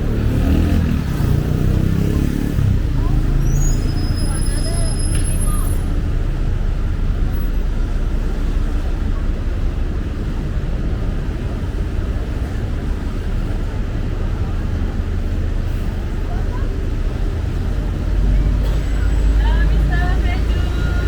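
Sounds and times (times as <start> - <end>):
city road traffic rumble: 0.0 - 21.0.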